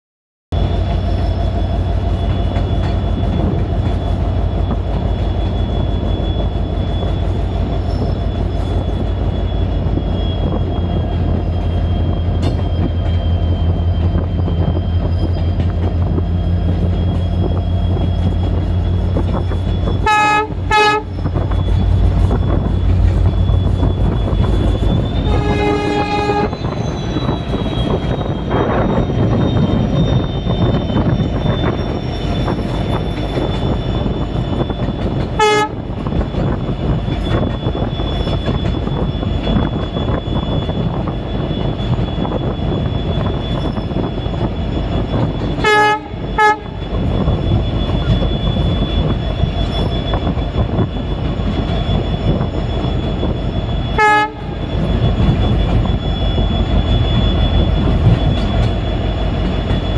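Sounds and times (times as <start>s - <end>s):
locomotive engine rumble: 0.6s - 59.9s
locomotive horn: 19.9s - 22.3s, 24.7s - 27.0s, 35.3s - 36.0s, 45.6s - 46.9s, 53.9s - 54.6s.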